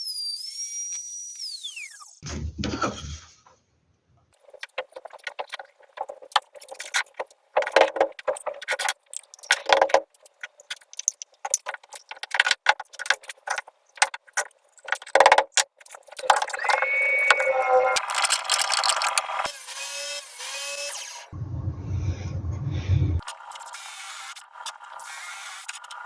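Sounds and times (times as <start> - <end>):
hand tools clicking and rattling: 4.4 - 16.6, 18.0 - 19.5.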